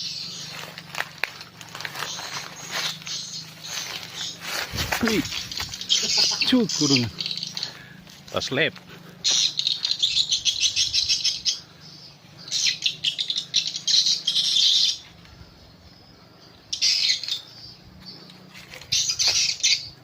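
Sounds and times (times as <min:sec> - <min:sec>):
swiftlets twittering: 0:02.2 - 0:08.7.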